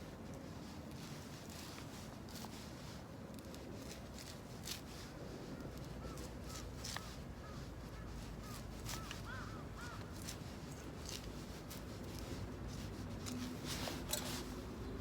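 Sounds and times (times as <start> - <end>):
bird calling: 8.4 - 10.1.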